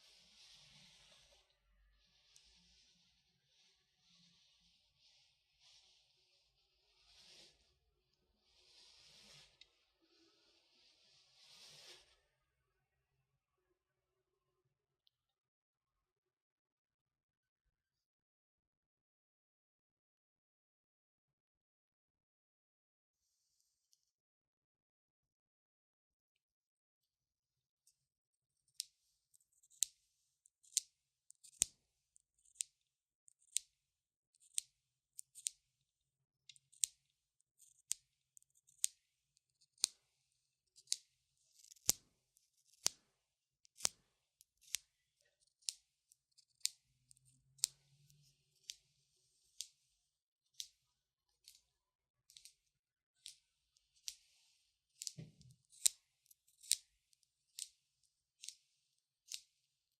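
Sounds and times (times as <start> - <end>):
fingernails scratching: 10.8 - 12.1
fingernails clicking: 42.6 - 49.9, 55.0 - 56.9.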